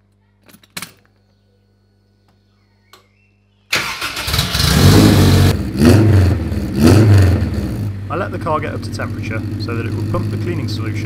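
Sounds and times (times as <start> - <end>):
car engine starting and running: 3.7 - 11.0.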